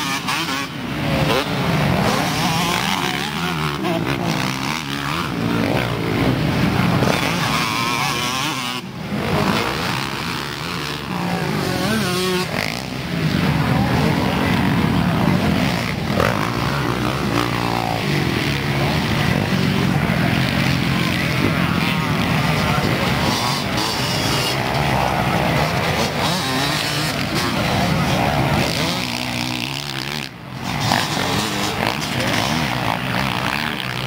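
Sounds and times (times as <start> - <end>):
dirt bike engines revving: 0.0 - 34.0.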